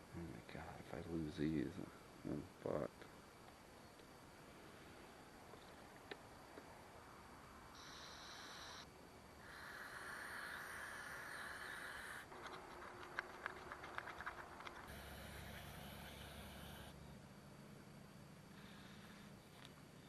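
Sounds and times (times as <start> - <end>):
aerosol spray hissing: 14.9 - 16.9.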